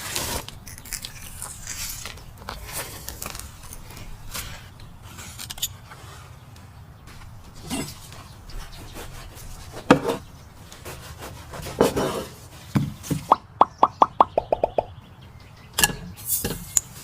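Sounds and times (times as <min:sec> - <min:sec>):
liquid glugging plops: 0:13.3 - 0:14.9.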